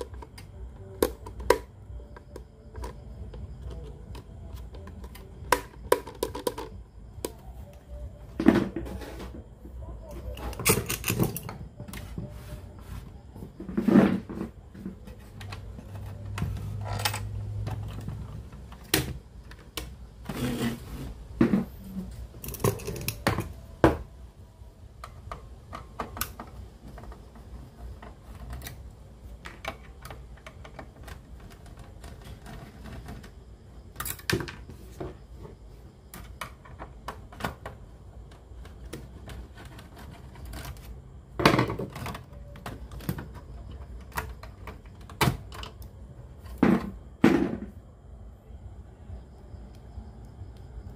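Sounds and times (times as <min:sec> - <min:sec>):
small hard objects clicking: 0:02.3 - 0:07.5.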